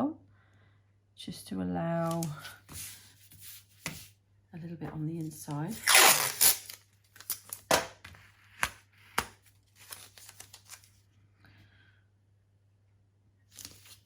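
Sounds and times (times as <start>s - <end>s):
tape and paper crackling: 2.0s - 4.1s, 5.2s - 11.0s, 13.5s - 14.0s
masking tape ripping off roll: 5.8s - 7.9s.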